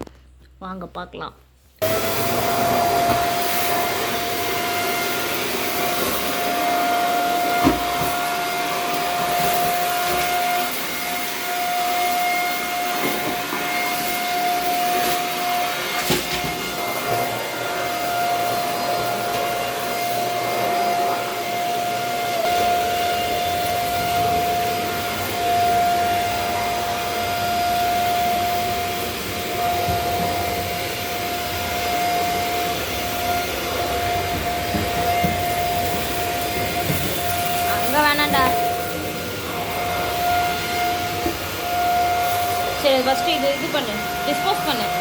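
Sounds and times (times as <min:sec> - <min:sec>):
vacuum cleaner running: 0:01.8 - 0:45.0.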